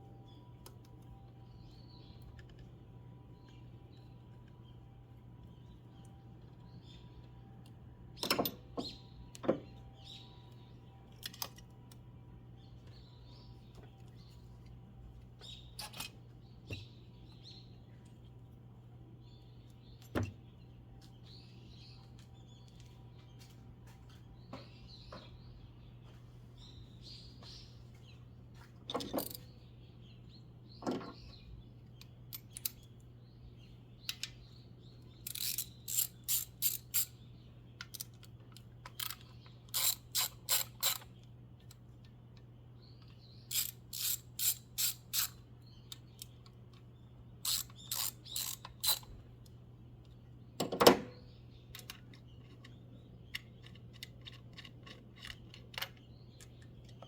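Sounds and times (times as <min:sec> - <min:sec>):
ratchet wrench clicking: 0:35.2 - 0:37.2, 0:39.0 - 0:41.1, 0:43.5 - 0:45.4, 0:47.4 - 0:49.1.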